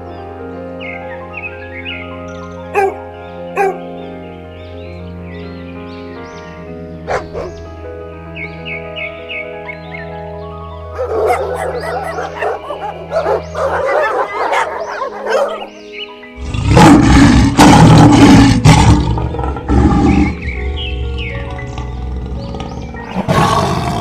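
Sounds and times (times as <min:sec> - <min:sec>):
background music: 0:00.0 - 0:24.0
big cat roaring: 0:16.4 - 0:24.0.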